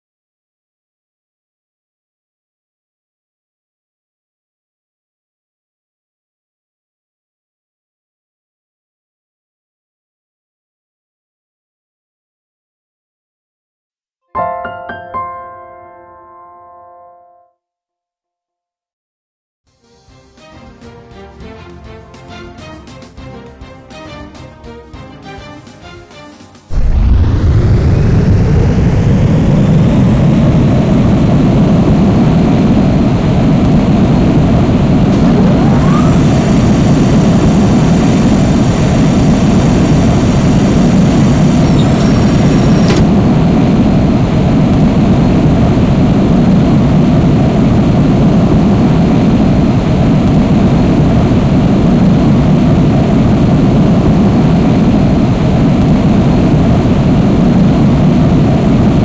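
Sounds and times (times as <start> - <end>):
faint high whine: 26.7 - 59.0
jet engines roaring: 26.7 - 59.0.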